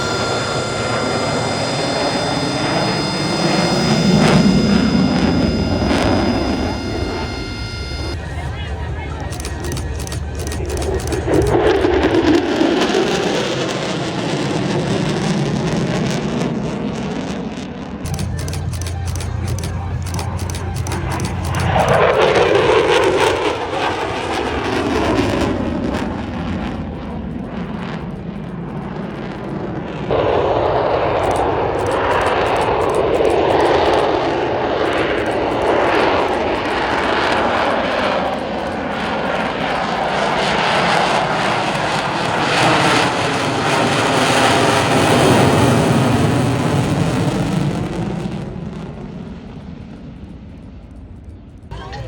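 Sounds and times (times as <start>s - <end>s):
jet engine roaring: 0.0s - 50.0s.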